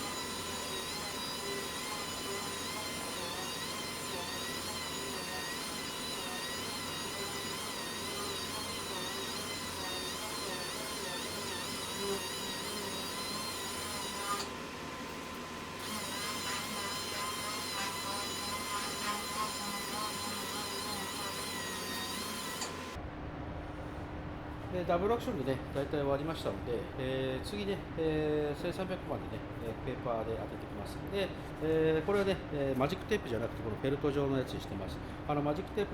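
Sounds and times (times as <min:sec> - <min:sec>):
sander whining: 0:00.0 - 0:23.0.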